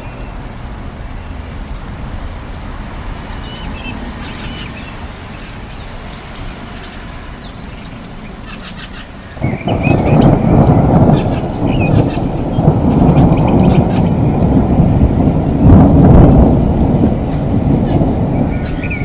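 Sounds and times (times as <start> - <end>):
steady low rumble: 0.0 - 8.4, 9.4 - 19.0
birds chirping: 0.0 - 19.0
thunder rolling: 9.4 - 19.0.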